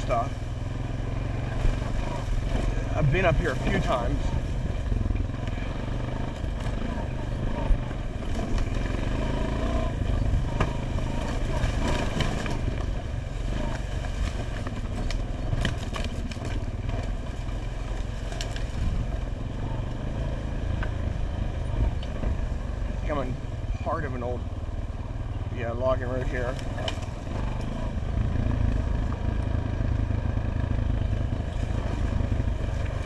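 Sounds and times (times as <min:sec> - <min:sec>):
atv engine running: 0:00.0 - 0:33.0
clicks and clatter: 0:13.6 - 0:17.2.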